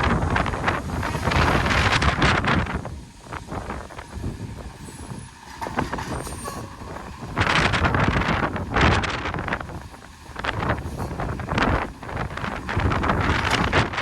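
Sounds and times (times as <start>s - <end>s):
loud rushing bursts: 0.0s - 3.0s
refuse truck running: 0.0s - 14.0s
faint high squeals: 4.7s - 7.1s.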